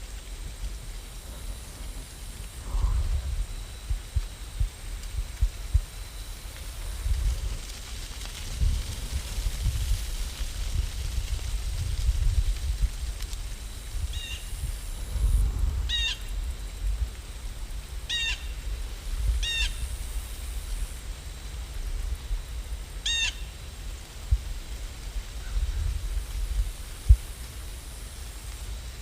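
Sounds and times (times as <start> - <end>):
low rumble: 0.0 - 17.6.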